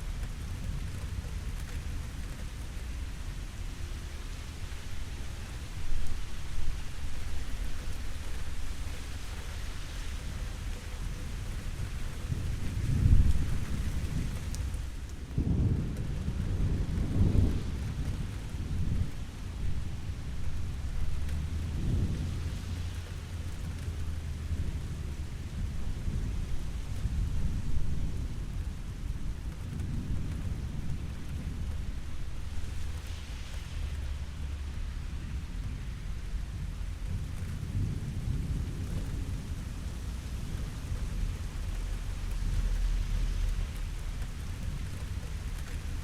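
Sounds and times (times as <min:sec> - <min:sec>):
steady rain: 0:00.0 - 0:46.0
thunder rumbling: 0:11.0 - 0:46.0.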